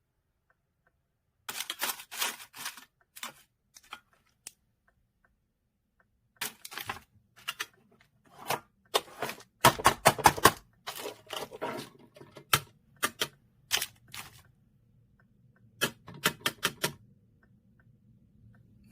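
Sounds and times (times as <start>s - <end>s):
handling taps and clicks: 0.9s - 5.0s, 6.0s - 14.6s.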